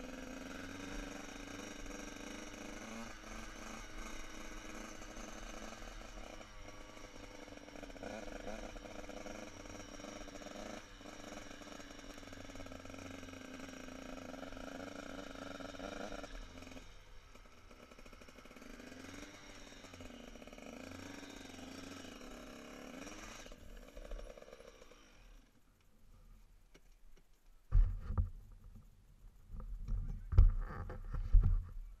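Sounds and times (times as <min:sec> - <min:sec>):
motorcycle engines revving: 0:00.0 - 0:25.6
low thumps on microphone: 0:27.7 - 0:28.8, 0:29.5 - 0:31.9.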